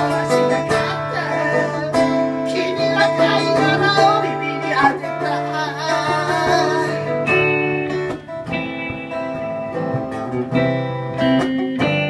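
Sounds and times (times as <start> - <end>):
person singing: 0.0 - 7.4
guitar playing chords: 0.0 - 12.0.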